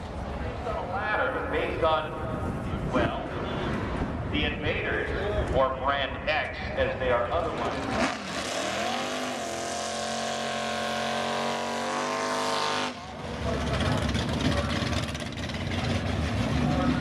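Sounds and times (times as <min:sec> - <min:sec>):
low rough engine rumble: 0:00.0 - 0:08.2, 0:09.4 - 0:17.0
race car engine full throttle: 0:06.7 - 0:17.0.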